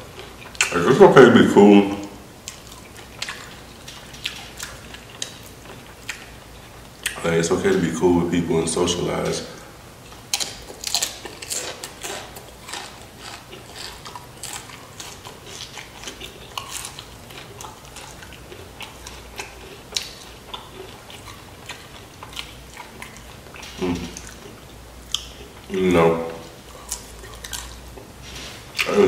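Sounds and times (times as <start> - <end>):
wet chewing: 0.0 - 1.0, 2.0 - 7.2, 10.0 - 29.0
crunching tortilla chips: 10.1 - 25.8.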